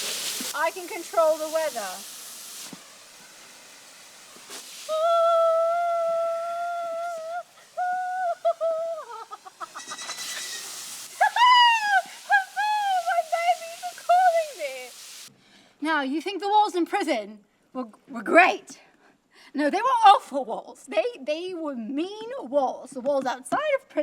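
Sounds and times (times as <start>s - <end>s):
woman vocalizing high notes: 4.9s - 9.2s, 11.2s - 13.7s.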